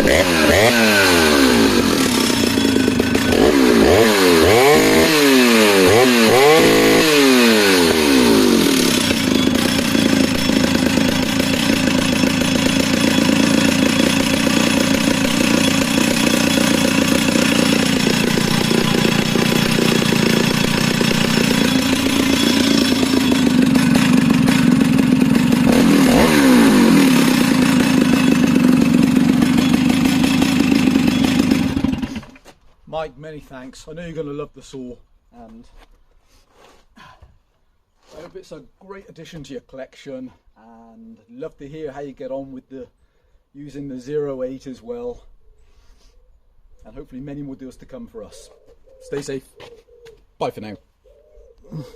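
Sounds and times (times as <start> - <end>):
chainsaw engine revving: 0.0 - 32.4.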